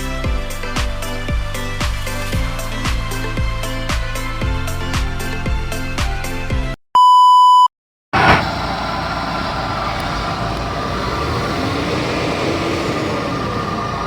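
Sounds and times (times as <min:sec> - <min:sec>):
short electronic beep: 0:07.0 - 0:07.7
car engine running: 0:08.2 - 0:14.0.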